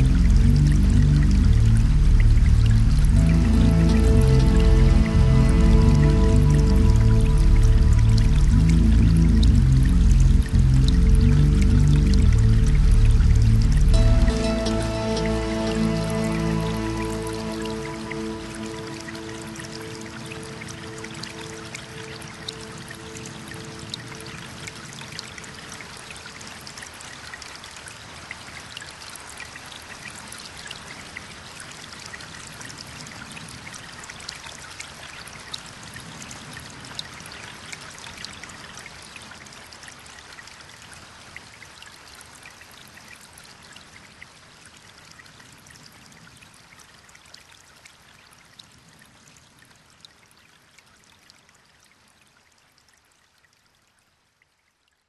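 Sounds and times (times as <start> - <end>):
waterfall splashing: 13.8 - 26.7.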